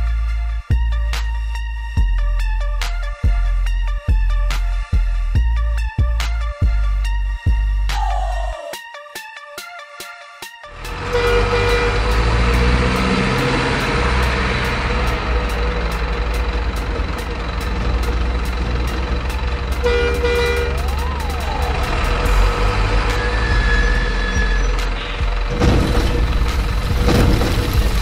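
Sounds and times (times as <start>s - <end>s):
truck horn: 10.7s - 15.5s, 19.2s - 26.7s
truck engine rumble: 10.7s - 28.0s
siren-like glide: 20.5s - 24.8s.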